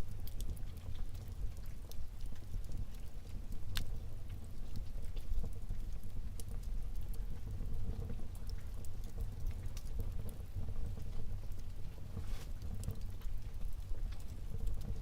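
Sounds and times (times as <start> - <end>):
fire crackling and popping: 0.0 - 15.0
low rumble of flames: 0.0 - 15.0.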